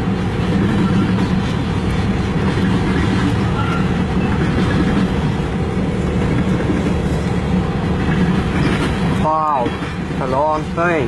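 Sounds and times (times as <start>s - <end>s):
train wheels rumbling on rail: 0.0s - 11.0s
clicking over rail joints: 6.0s - 10.8s.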